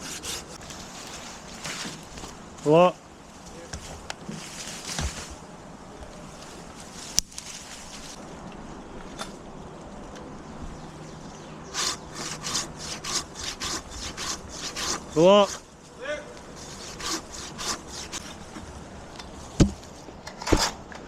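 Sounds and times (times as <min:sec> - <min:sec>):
handsaw cutting through branch: 0:00.0 - 0:00.6, 0:11.7 - 0:15.7, 0:16.5 - 0:18.4.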